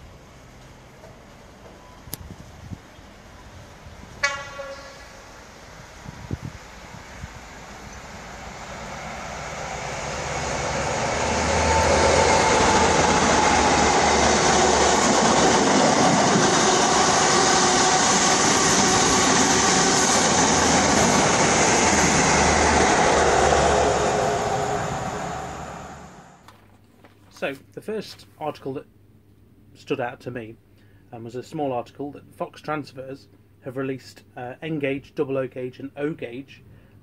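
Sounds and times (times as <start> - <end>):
train rumbling past: 0.0 - 26.4.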